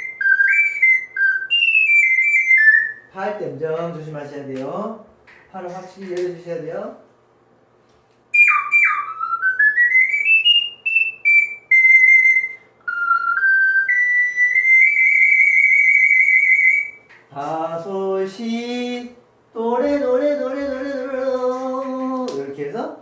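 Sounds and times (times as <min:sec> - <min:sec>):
ocarina playing: 0:00.0 - 0:03.2, 0:08.3 - 0:22.2
man speaking: 0:03.1 - 0:07.1.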